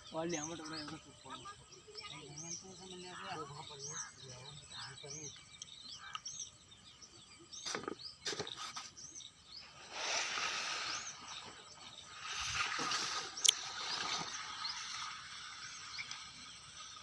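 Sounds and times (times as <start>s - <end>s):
small birds chirping: 0.0s - 17.0s
hissing noise: 9.6s - 17.0s.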